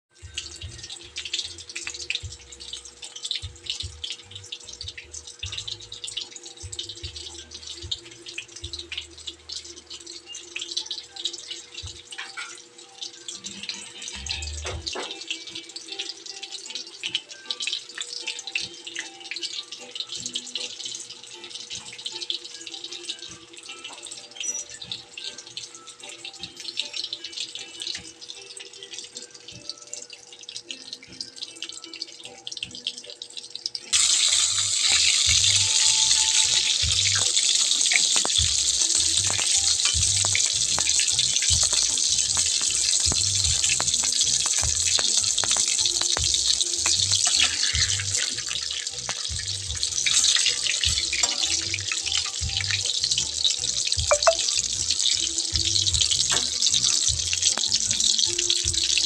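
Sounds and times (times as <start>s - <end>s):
music with low beat: 0.1s - 10.0s, 11.6s - 12.2s, 13.6s - 15.2s, 34.5s - 59.0s
food frying in hot oil: 0.1s - 59.0s.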